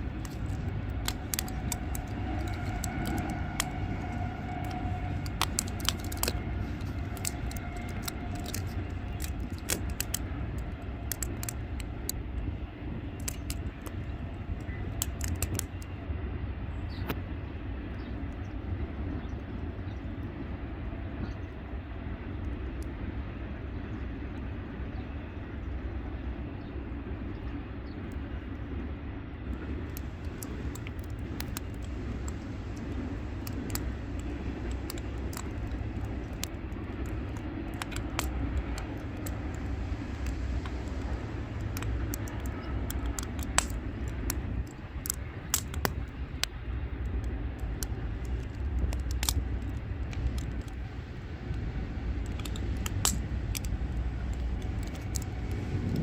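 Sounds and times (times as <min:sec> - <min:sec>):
sharp pops of fire: 0:00.0 - 0:15.9, 0:29.6 - 0:56.0
wood fire crackling: 0:00.0 - 0:16.0, 0:29.5 - 0:56.0
steady low rumble: 0:00.0 - 0:56.0.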